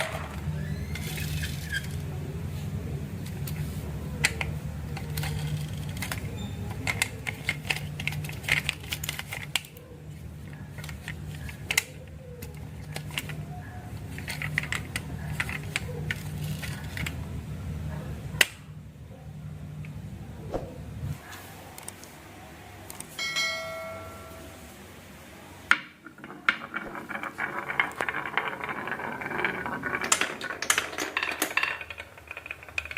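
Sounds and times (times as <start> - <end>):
marbles clacking: 0.0 - 2.1, 25.8 - 32.9
marbles rolling on wooden track: 0.0 - 2.2, 3.2 - 17.2, 25.7 - 32.9.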